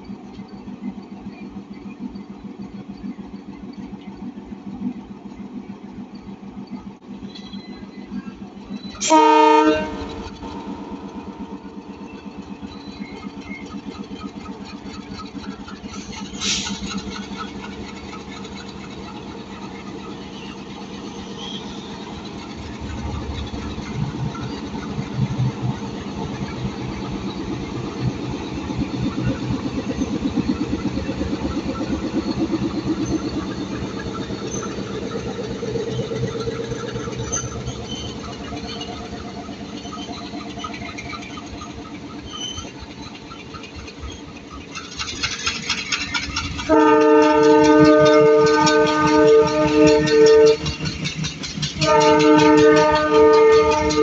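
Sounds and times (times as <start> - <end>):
locomotive horn blast: 9.0 - 10.4, 46.7 - 50.8, 51.8 - 54.0.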